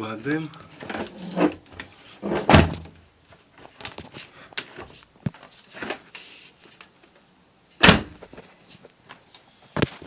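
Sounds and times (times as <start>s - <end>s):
window sash knock and scrape: 2.2s - 2.9s.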